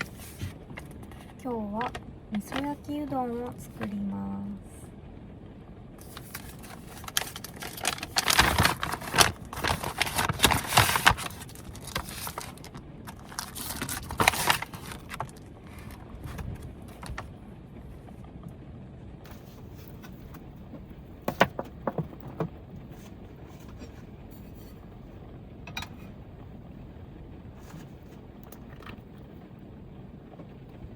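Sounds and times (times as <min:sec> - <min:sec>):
steady low hiss: 0:00.0 - 0:30.9
kitchen utensils rustling and clinking: 0:19.3 - 0:24.9, 0:25.7 - 0:26.2.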